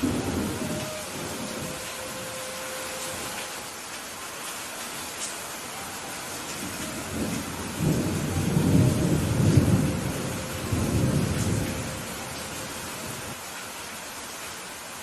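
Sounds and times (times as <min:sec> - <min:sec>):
thunder rumbling: 0:00.0 - 0:03.6, 0:05.8 - 0:13.4
steady rain: 0:00.0 - 0:15.0.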